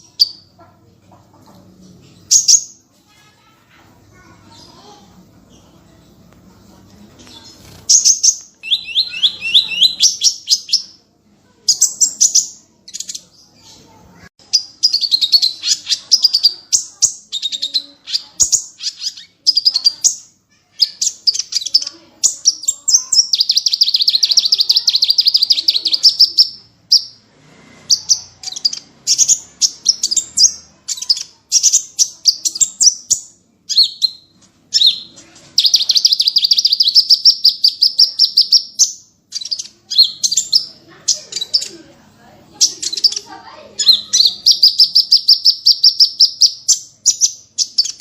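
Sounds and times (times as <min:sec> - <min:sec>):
songbirds trilling and chattering: 0:00.0 - 0:48.0.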